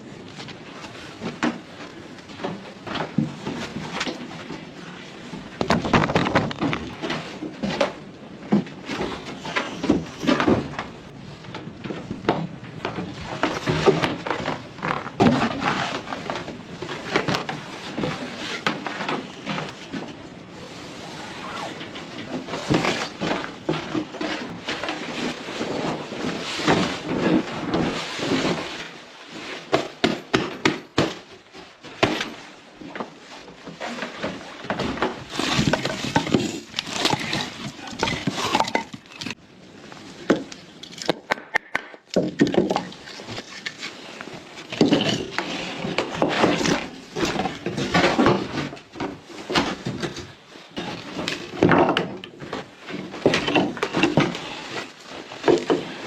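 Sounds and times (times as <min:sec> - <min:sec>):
wood knocking and cracking: 0:05.6 - 0:20.1, 0:40.3 - 0:43.7.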